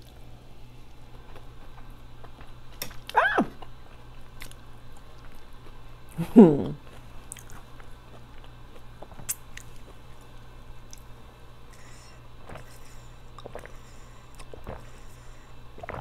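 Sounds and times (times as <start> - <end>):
chewing and lip smacks: 1.2 - 6.2, 6.8 - 11.1, 11.7 - 15.0
swallowing water: 15.8 - 16.0.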